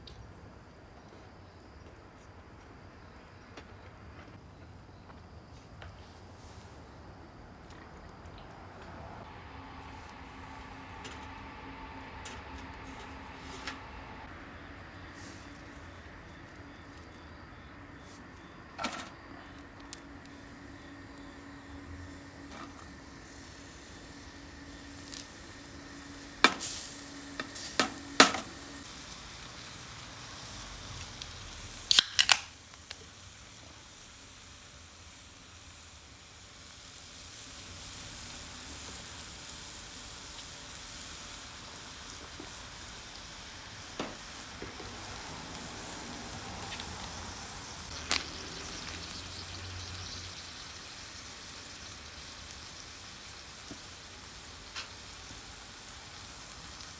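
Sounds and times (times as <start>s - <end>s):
food sizzling over charcoal: 5.0s - 56.9s
charcoal clicks and snaps: 31.0s - 33.2s, 47.8s - 49.2s.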